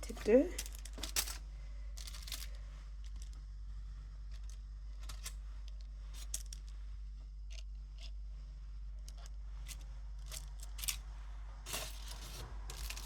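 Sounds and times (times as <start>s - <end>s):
kitchen items clicking and rustling: 0.0s - 1.4s, 2.0s - 3.4s, 11.7s - 13.0s
steady low hum: 0.0s - 13.0s.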